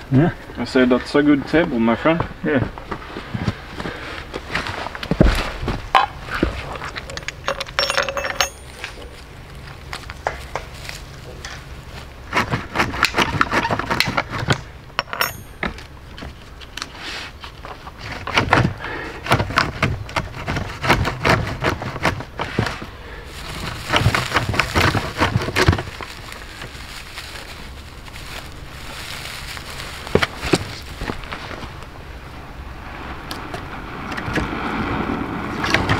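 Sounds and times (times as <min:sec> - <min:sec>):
rustling: 0:02.8 - 0:32.1
hard objects knocking and clinking: 0:06.8 - 0:09.2, 0:14.0 - 0:16.4.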